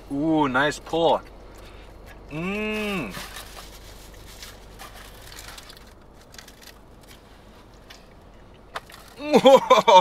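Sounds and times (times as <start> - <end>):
chewing and crunching food: 0.8 - 9.2
person humming appreciatively: 2.3 - 3.2.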